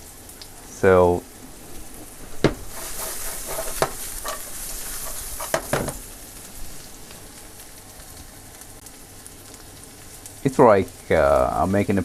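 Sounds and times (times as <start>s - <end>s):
vegetables sizzling in oil: 0.0s - 12.0s
utensil knocking against pan: 2.3s - 2.8s, 3.6s - 4.4s, 5.4s - 6.0s.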